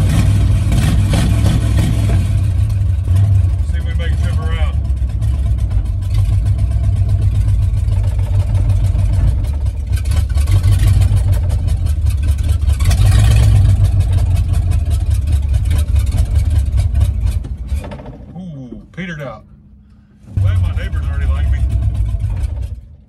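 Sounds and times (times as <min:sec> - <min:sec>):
car engine running rough: 0:00.0 - 0:23.0.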